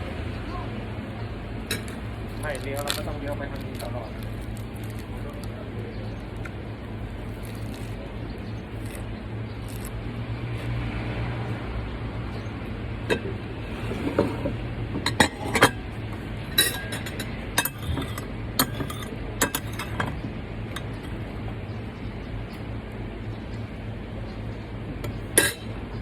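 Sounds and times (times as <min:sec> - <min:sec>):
cutlery clinking against dishes: 0:16.5 - 0:20.2, 0:25.4 - 0:25.7.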